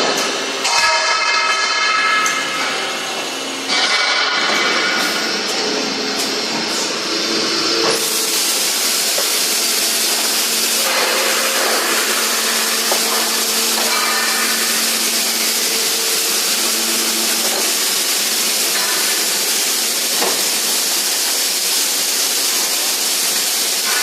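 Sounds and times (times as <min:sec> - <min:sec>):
welding machine hissing: 0:00.0 - 0:24.0
steady low hum: 0:02.6 - 0:20.7.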